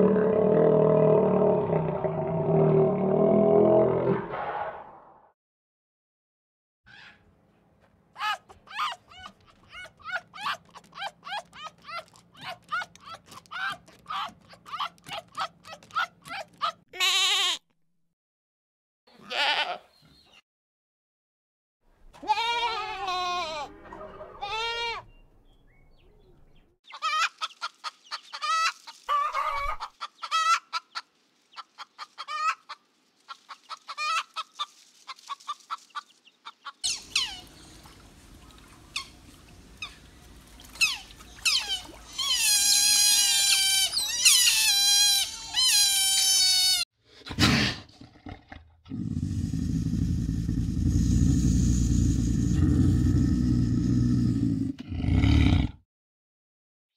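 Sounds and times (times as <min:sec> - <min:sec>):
otters chirping and squealing: 0:26.9 - 0:37.7, 0:40.7 - 0:46.8.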